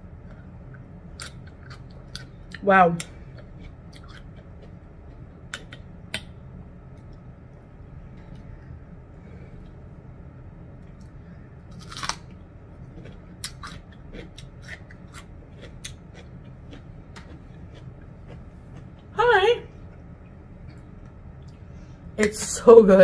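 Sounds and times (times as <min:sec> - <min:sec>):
chewing and crunching food: 0:00.2 - 0:06.3, 0:10.8 - 0:19.2.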